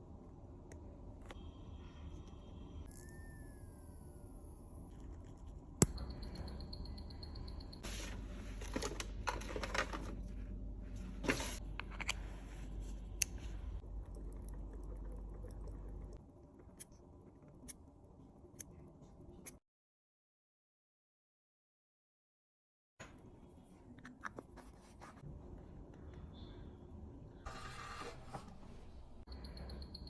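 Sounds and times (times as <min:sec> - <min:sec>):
low steady hum: 0:00.0 - 0:19.5.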